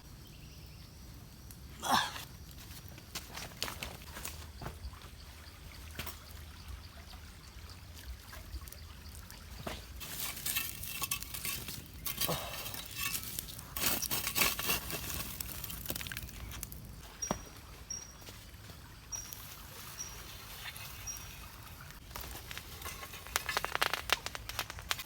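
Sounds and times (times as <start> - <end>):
small knocks and clinks: 10.0 - 16.6.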